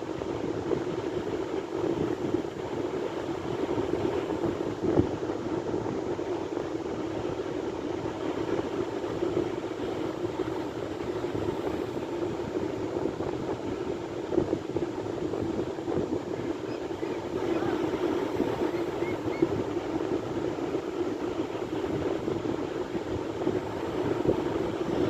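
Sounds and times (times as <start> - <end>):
sea surf washing: 8.3 - 25.0.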